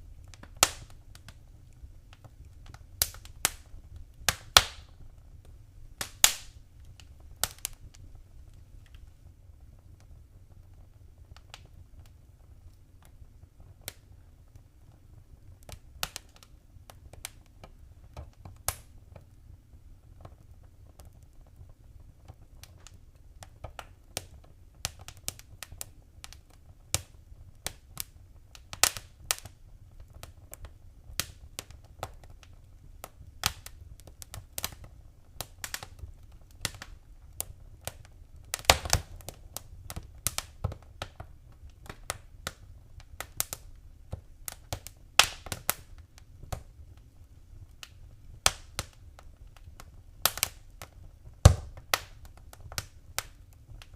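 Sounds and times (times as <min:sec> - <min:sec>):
low steady fire rumble: 0:00.0 - 0:53.9
wood fire crackling and popping: 0:00.0 - 0:53.9.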